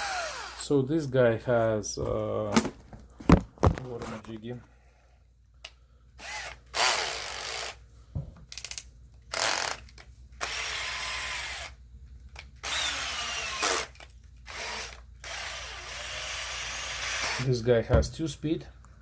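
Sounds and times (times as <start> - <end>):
cordless drill motor spinning: 0.0 - 0.6, 6.2 - 7.8, 9.3 - 11.8, 12.4 - 17.5.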